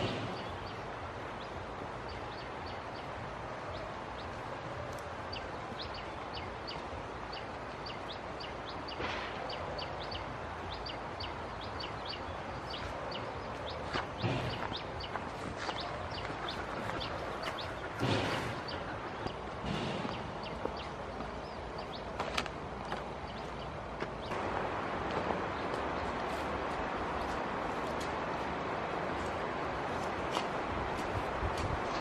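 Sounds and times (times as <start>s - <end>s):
birds chirping high peeps: 5.3s - 22.2s.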